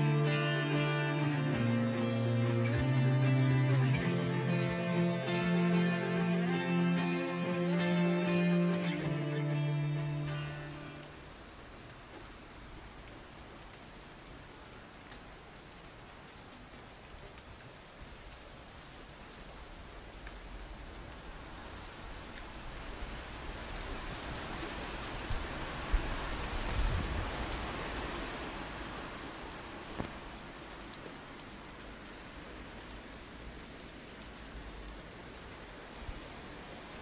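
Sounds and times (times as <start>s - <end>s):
steady rain hiss: 0.0s - 37.0s.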